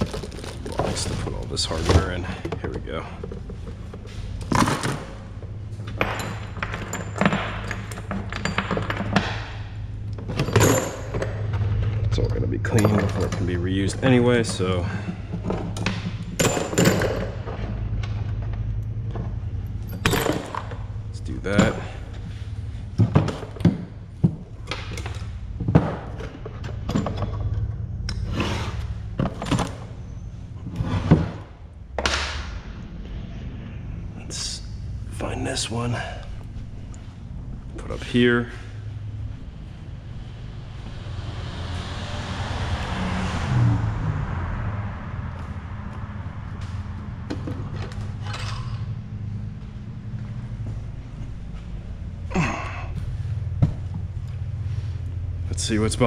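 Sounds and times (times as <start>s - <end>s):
metal bolts clinking: 0.0s - 28.3s
tools and metal parts clunking: 0.0s - 32.2s, 46.4s - 56.0s
steady low hum: 0.0s - 56.0s.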